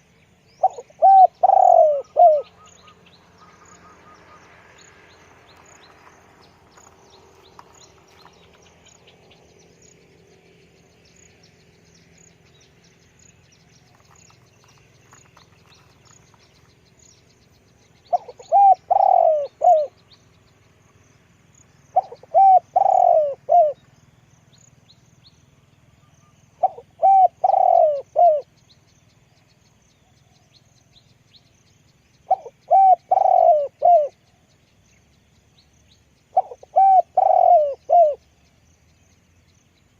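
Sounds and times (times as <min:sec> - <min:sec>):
dove cooing: 0:00.6 - 0:02.9, 0:18.0 - 0:20.0, 0:21.9 - 0:23.8, 0:26.6 - 0:28.5, 0:32.3 - 0:34.2, 0:36.3 - 0:38.2.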